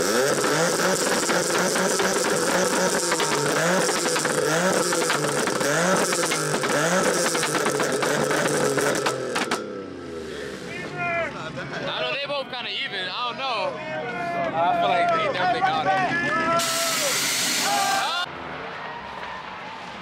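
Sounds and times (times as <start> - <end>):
exhaust pops and crackles: 0.0 - 9.6
car engines revving hard: 0.0 - 10.7.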